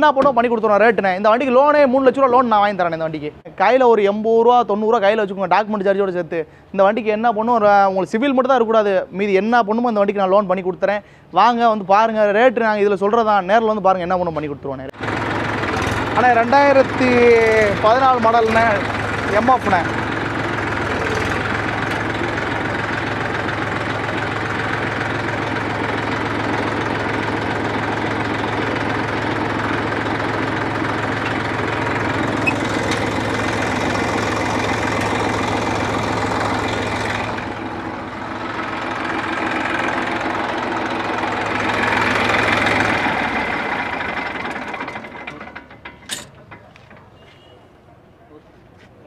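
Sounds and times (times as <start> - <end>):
diesel tractor engine idling: 14.3 - 48.9.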